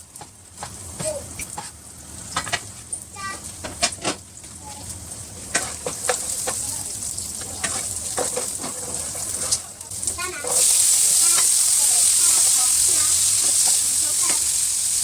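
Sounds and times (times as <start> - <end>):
food frying in oil: 0.0 - 15.0
spatula scraping a pan: 5.4 - 6.7, 7.4 - 9.7.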